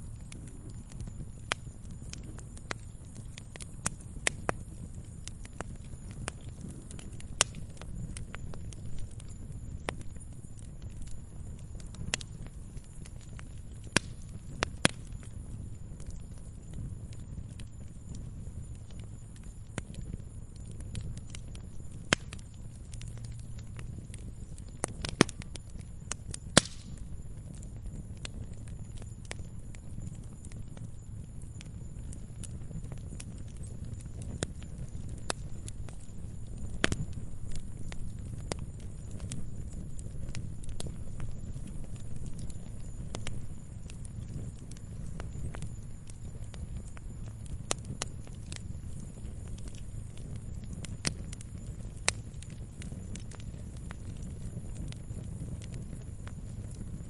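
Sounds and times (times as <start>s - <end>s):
wood fire crackling: 0.0s - 57.0s
fire hiss: 26.5s - 27.1s.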